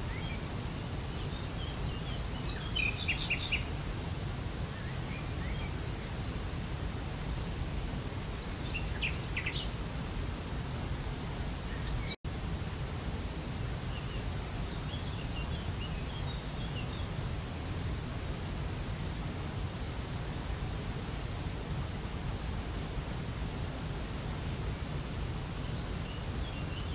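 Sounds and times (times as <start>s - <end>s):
small birds chirping: 0.0s - 9.9s, 11.2s - 12.2s, 13.2s - 17.3s, 25.6s - 26.9s.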